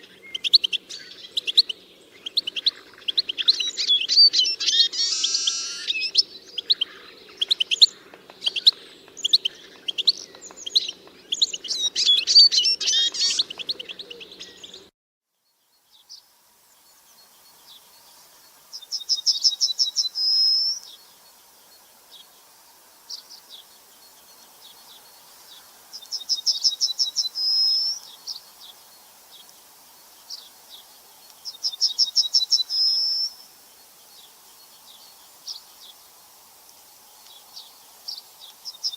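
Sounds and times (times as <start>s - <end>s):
birds chirping: 0.0s - 14.9s.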